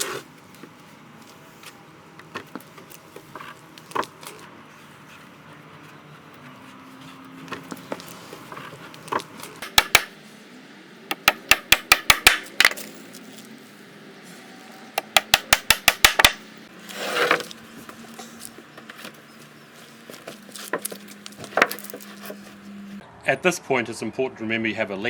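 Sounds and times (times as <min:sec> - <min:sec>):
hammer striking nails: 0:09.6 - 0:10.1, 0:11.1 - 0:12.8, 0:15.0 - 0:16.4.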